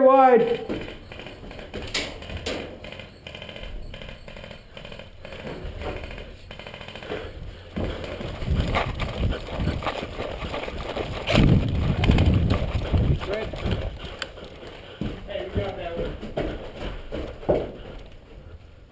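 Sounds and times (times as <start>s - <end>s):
heavy irregular thuds: 0.7s - 18.1s
airsoft guns full-auto bursts: 0.8s - 7.4s.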